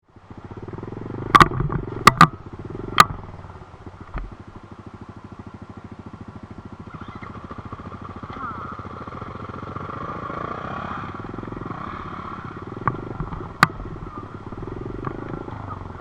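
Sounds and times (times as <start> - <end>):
dirt bike engine running: 0.1 - 16.0
sharp clicks: 1.3 - 2.4.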